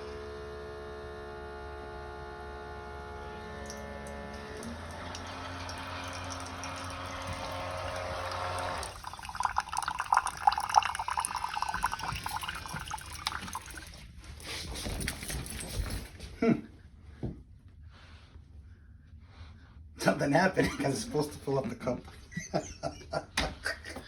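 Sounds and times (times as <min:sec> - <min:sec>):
coffee maker pump hum: 0:00.0 - 0:14.0
liquid sputtering and dripping: 0:03.7 - 0:14.0.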